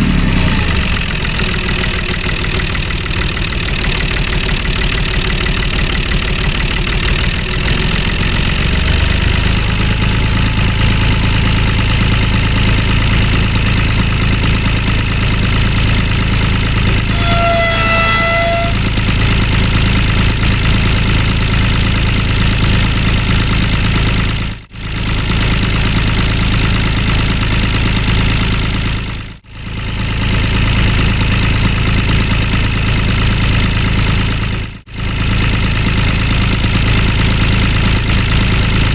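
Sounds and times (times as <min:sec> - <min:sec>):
model tractor engine running: 0:00.0 - 0:38.9
short horn-like tone: 0:09.2 - 0:14.0, 0:17.0 - 0:19.4.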